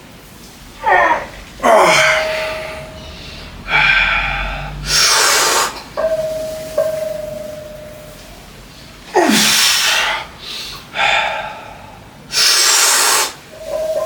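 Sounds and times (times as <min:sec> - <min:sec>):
person grunting: 0:00.8 - 0:02.8, 0:09.1 - 0:10.1
ringing tone: 0:01.6 - 0:03.7, 0:06.0 - 0:08.5, 0:13.5 - 0:14.0
person breathing hard: 0:01.6 - 0:05.8, 0:09.2 - 0:13.4.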